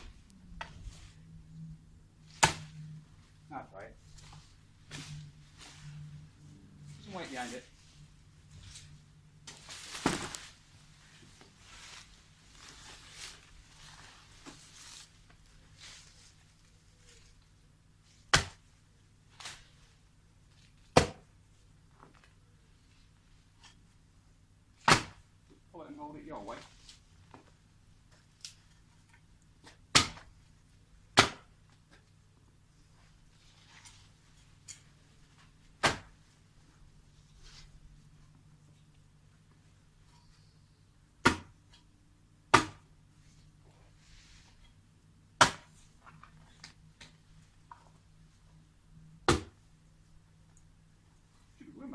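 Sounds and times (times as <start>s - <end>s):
faint low hum: 0.0s - 51.9s
rustling and scuffing in a hedge: 4.0s - 17.4s, 43.2s - 44.8s.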